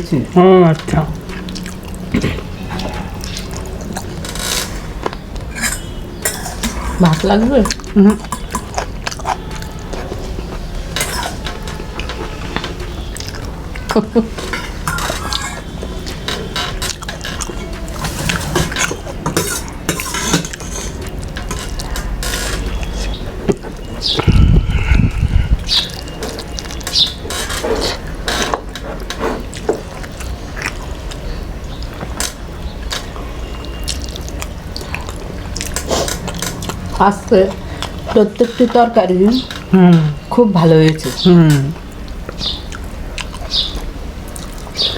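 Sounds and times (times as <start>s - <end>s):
steady low hum: 0.0s - 29.0s
chewing: 1.2s - 24.4s, 25.6s - 39.7s, 40.9s - 44.9s
cutlery and dishes clinking: 2.8s - 23.8s.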